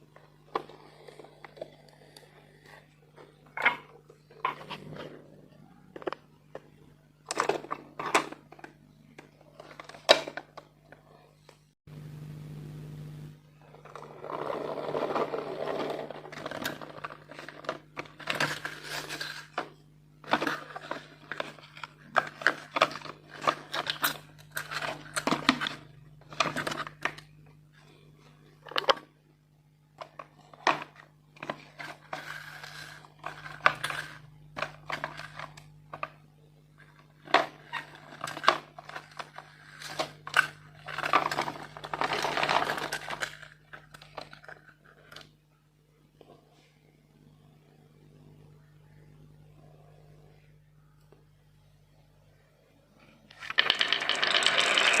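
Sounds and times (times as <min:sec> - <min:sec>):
low hum: 0:11.9 - 0:14.4
marbles clattering on plastic track: 0:53.3 - 0:55.0.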